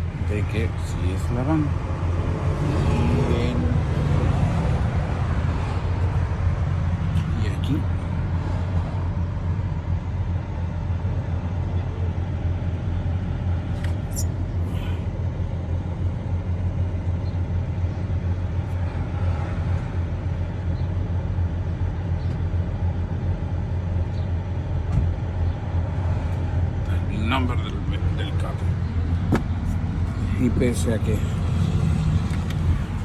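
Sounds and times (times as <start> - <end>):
steady low rumble: 0.0 - 33.0
high-pitched squeak: 14.0 - 14.4.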